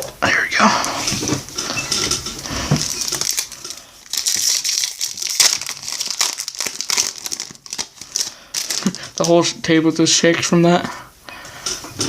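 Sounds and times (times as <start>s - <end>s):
foil wrapper crinkling and tearing: 2.8s - 9.5s.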